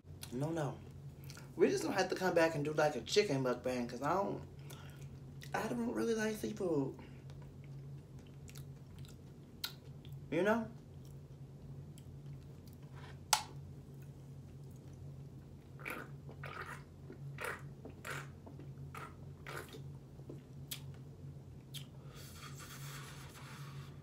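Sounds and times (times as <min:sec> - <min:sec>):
person chewing food: 0:07.2 - 0:22.4.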